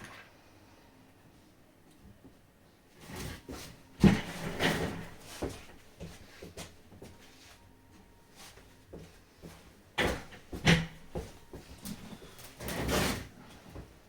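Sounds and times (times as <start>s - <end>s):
scraping on work surface: 12.2s - 13.4s.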